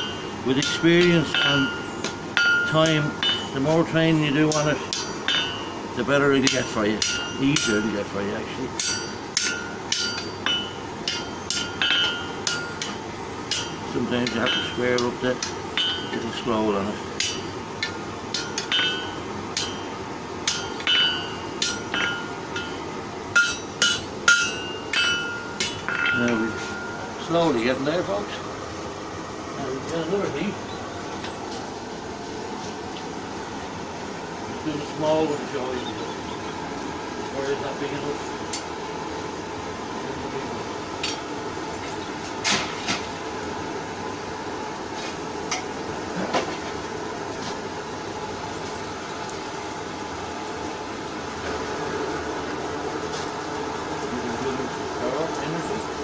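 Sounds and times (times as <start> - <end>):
hammer striking metal on anvil: 0.0 - 3.5, 4.5 - 5.7, 6.4 - 8.0, 8.8 - 16.3, 17.2 - 27.1
forge blowing rumble: 0.0 - 56.0.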